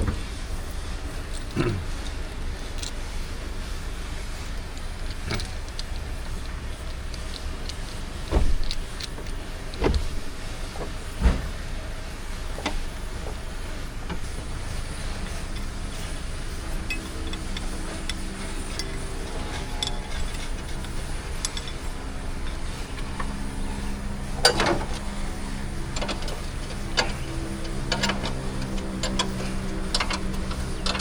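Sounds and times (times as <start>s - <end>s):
low steady rumble: 0.0s - 31.0s
heavy thumps: 8.2s - 11.7s
metal clicks and clinks: 14.2s - 25.2s, 25.8s - 31.0s.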